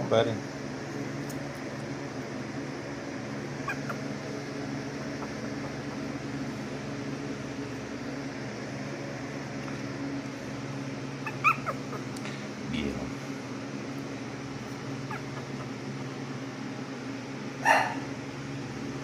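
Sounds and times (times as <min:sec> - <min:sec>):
appliance fan humming: 0:00.0 - 0:19.0.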